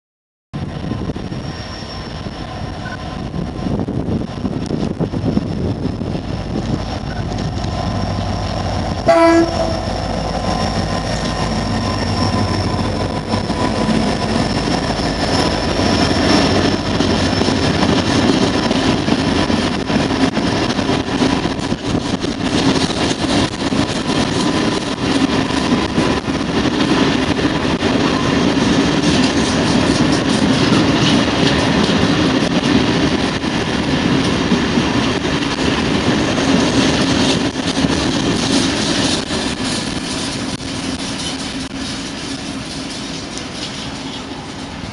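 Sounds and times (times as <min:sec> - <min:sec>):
train rumbling by: 0:00.6 - 0:44.9
wheels clicking over rail joints: 0:06.5 - 0:44.9
locomotive horn blast: 0:09.0 - 0:10.1.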